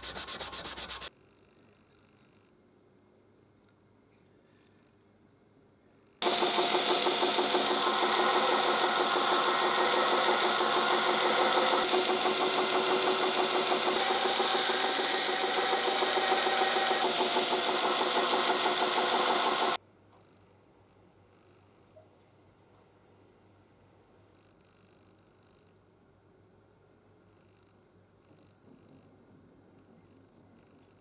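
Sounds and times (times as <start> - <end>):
power tool running: 6.2 - 19.8.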